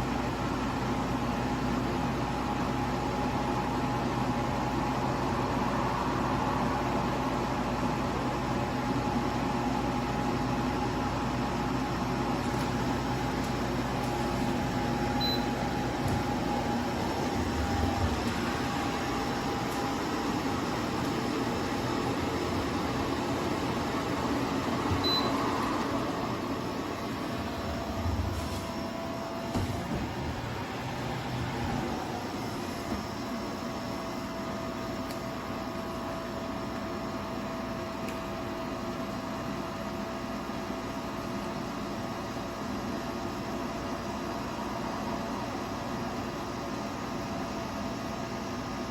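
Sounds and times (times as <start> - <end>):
portable air cooler humming: 0.0 - 48.9.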